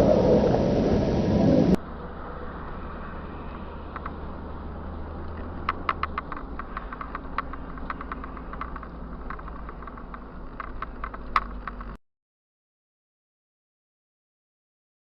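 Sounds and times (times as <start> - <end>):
car engine humming: 0.0 - 12.0
irregular clicks and rattles: 3.9 - 4.3, 5.2 - 12.0.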